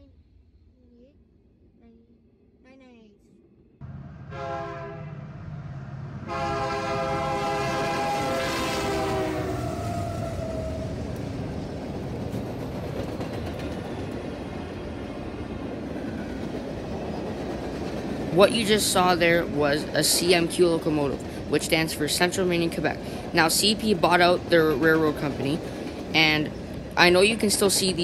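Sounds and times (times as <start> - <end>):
train horn blasts: 3.9 - 5.4, 6.2 - 10.6.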